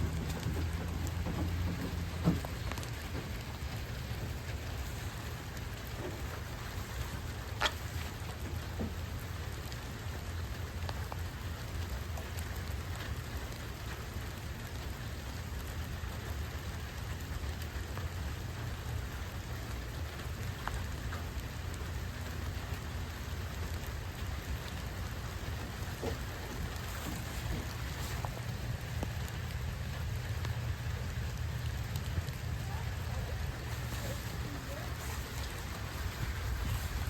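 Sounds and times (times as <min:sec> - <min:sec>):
rain falling on plants: 0:00.0 - 0:37.0.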